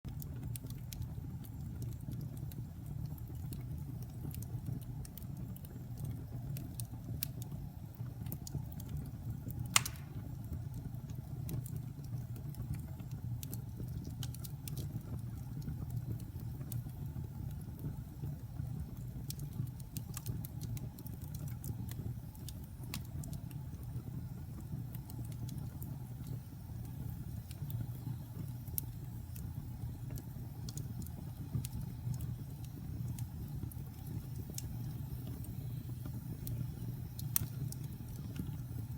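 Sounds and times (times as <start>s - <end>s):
fire crackling and popping: 0.1s - 38.9s
fire roaring: 9.4s - 10.7s, 13.6s - 38.9s.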